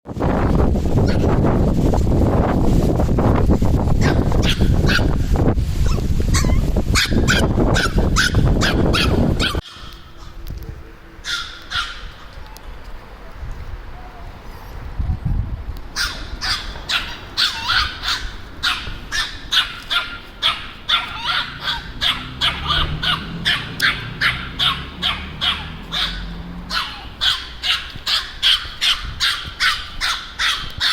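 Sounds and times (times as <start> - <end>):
small dog barking: 4.0 - 5.2, 5.8 - 10.4, 11.2 - 12.3, 16.0 - 30.9.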